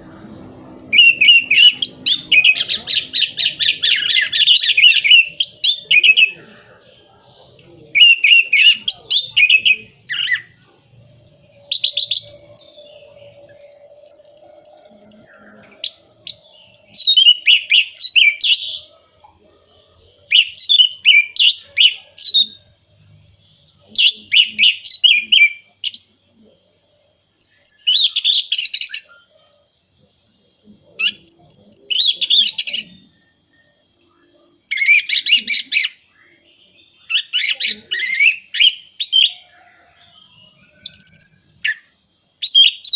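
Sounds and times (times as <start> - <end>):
thrush singing: 0.0 - 22.7.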